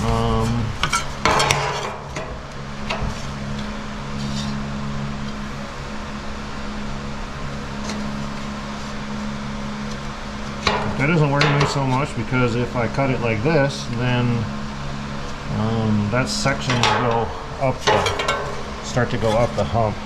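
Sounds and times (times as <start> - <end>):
steady low hum: 0.0 - 20.0
sheet metal clanking and knocking: 1.2 - 3.2, 10.6 - 12.2, 16.4 - 19.6.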